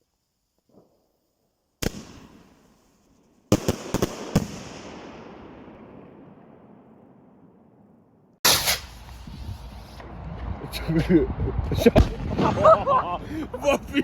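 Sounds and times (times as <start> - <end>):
firecrackers exploding: 1.8 - 2.8, 3.5 - 6.0, 8.4 - 10.1.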